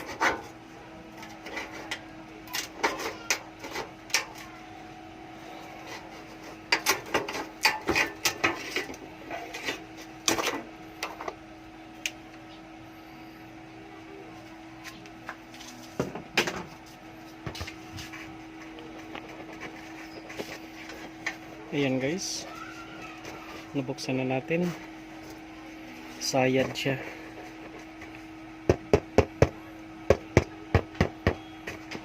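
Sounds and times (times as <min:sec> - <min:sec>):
steady low hum: 0:00.0 - 0:32.0
objects being handled: 0:14.8 - 0:21.7.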